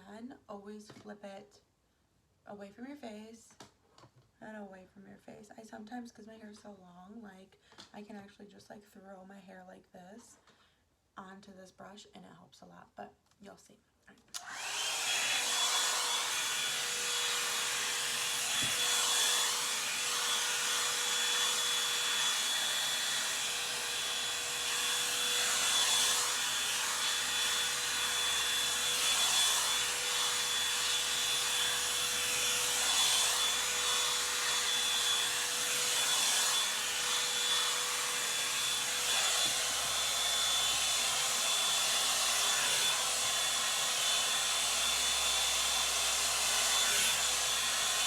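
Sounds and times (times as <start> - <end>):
hair dryer brush blowing: 14.4 - 48.0.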